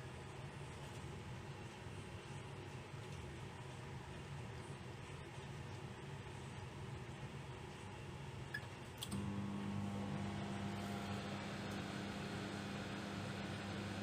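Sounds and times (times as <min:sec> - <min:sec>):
microwave humming: 0:08.5 - 0:14.0.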